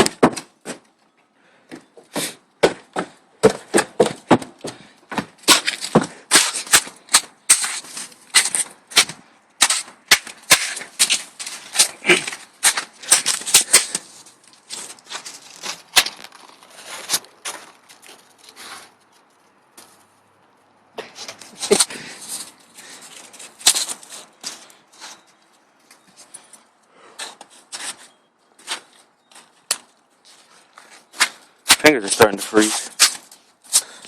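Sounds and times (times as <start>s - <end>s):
snow crunching: 10.5s - 19.0s.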